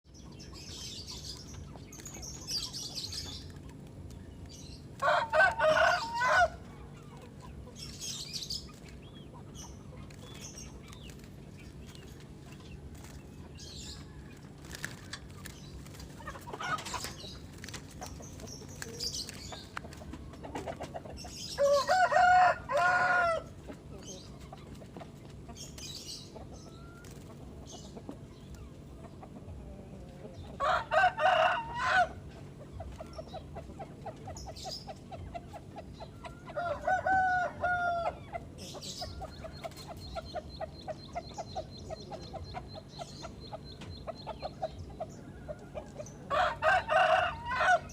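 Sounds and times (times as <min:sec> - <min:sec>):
small birds chirping: 0:00.0 - 0:47.9
rooster crowing: 0:05.0 - 0:06.6, 0:21.6 - 0:23.5, 0:30.6 - 0:32.2, 0:36.6 - 0:38.1, 0:46.3 - 0:47.9.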